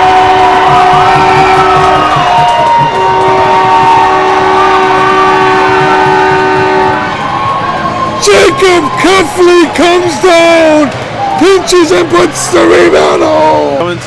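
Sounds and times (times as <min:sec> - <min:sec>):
arena goal horn blasts: 0:00.0 - 0:12.6.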